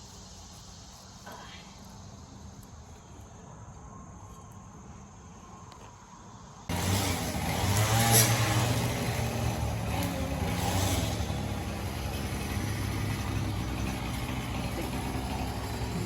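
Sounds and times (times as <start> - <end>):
engine running: 6.7 - 16.0.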